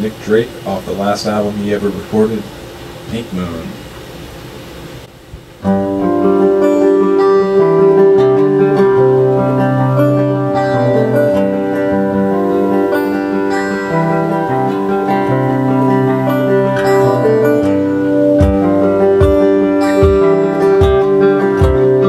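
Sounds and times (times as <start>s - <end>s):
acoustic guitar picking: 5.2s - 22.0s
kick drum thumps: 18.4s - 18.6s, 19.2s - 19.4s, 20.0s - 21.9s.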